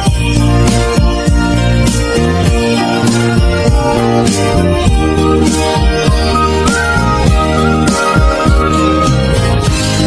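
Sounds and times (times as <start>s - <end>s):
band instrumental: 0.7s - 10.0s
steady drum beat: 3.4s - 10.0s.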